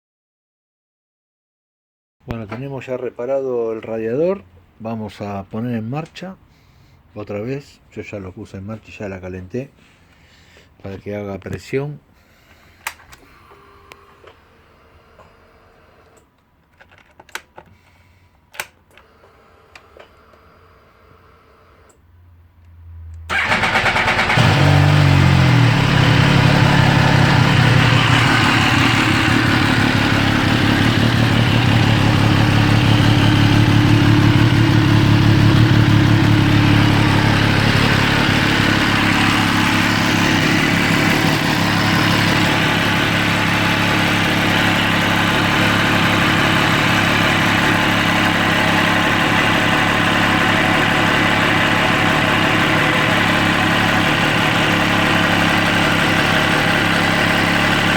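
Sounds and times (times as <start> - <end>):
motorcycle engine starting and idling: 23.3 - 57.9.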